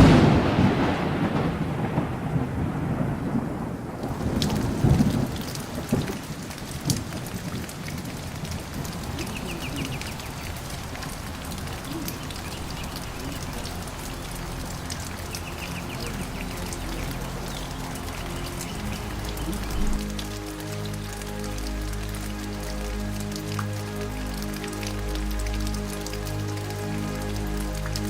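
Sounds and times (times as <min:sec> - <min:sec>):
thunderclap rumbling: 0:00.0 - 0:20.4
heavy rain: 0:00.0 - 0:28.0.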